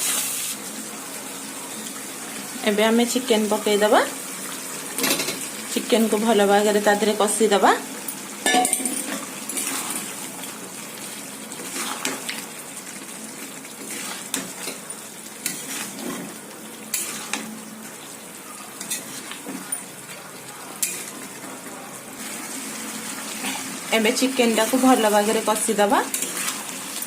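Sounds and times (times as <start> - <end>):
food sizzling in a pan: 0.0 - 27.0
spatula scraping a pan: 9.1 - 10.1, 11.6 - 12.2, 13.8 - 14.8, 15.4 - 17.5, 24.6 - 27.0.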